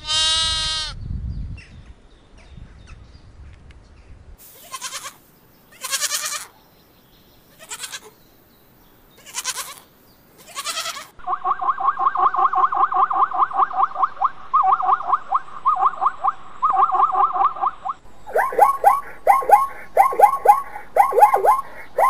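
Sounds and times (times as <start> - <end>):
young goat bleating: 0.0 - 1.0, 4.5 - 6.6, 7.5 - 8.2, 9.2 - 11.2
fast repeated call: 11.2 - 22.0.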